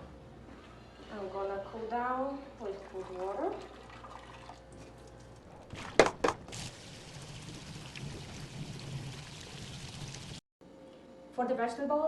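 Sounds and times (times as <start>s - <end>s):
tap water running: 2.6s - 5.2s, 5.8s - 10.4s.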